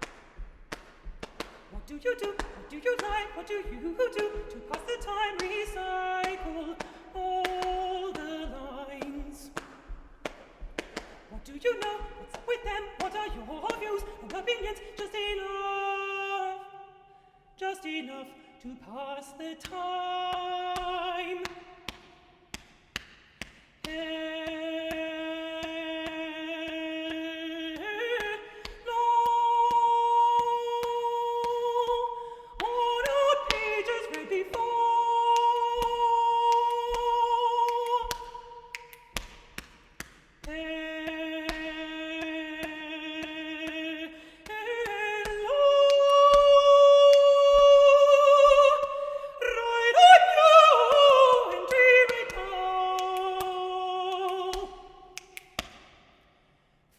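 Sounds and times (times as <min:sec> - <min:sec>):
body-percussion taps and clicks: 0:00.0 - 0:15.5, 0:20.8 - 0:27.2, 0:37.9 - 0:43.8, 0:54.5 - 0:56.3
person singing wordless notes: 0:40.5 - 0:55.1.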